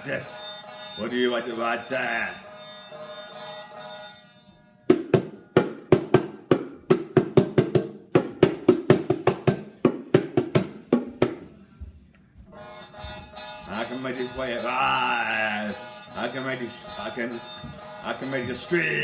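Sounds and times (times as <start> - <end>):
sharp percussive knocks: 4.9 - 11.4, 16.1 - 18.8.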